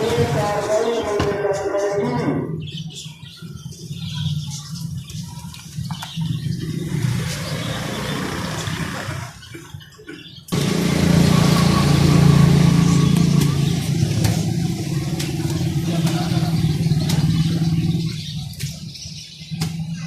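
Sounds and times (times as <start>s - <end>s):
engine humming steadily: 10.5s - 20.0s.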